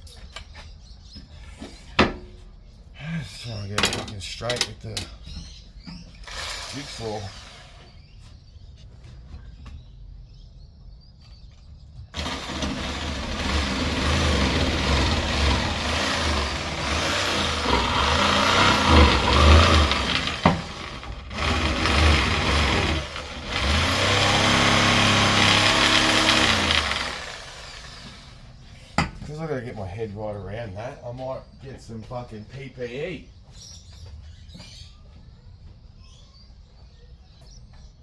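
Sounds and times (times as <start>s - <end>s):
electric jigsaw cutting wood: 6.2s - 7.9s, 12.2s - 28.5s.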